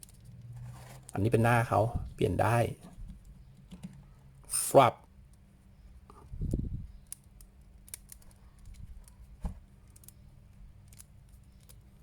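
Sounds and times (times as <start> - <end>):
plastic parts clicking and tapping: 3.1 - 4.1.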